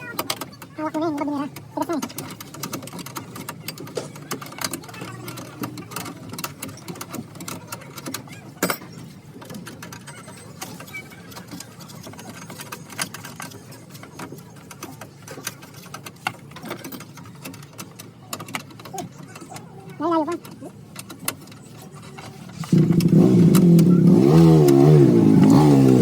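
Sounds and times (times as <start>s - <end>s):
hand tools clicking on metal: 0.0s - 26.0s.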